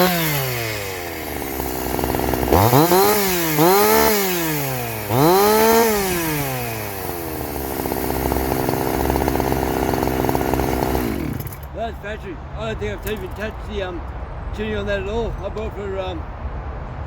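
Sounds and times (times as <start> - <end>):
chainsaw revving and idling: 0.0 - 11.8.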